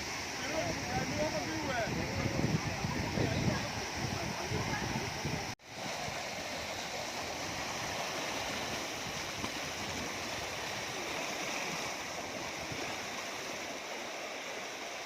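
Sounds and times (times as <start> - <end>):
waterfall rushing over rock: 0.0 - 15.0.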